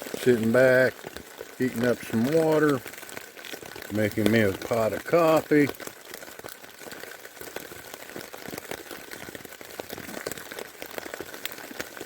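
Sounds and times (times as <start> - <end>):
rain pattering on tent: 0.0 - 12.0.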